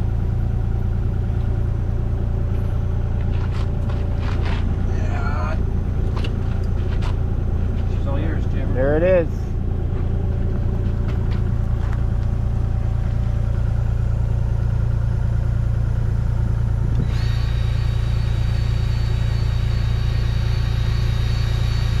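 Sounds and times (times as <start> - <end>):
excavator engine humming: 0.0 - 22.0
high-pitched whine: 16.9 - 22.0.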